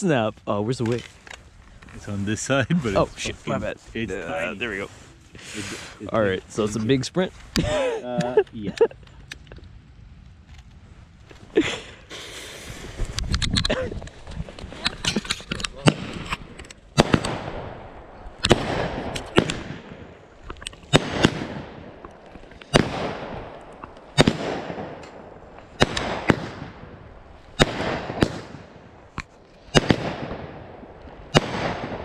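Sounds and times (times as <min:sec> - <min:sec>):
fireworks bangs with hiss: 0:11.6 - 0:13.2, 0:17.0 - 0:17.8, 0:18.4 - 0:32.0.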